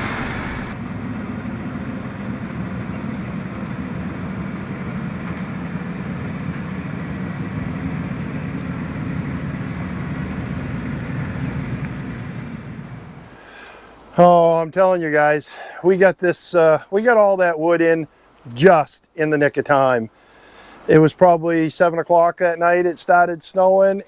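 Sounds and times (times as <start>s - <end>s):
vehicle engine and road noise: 0.0s - 14.2s.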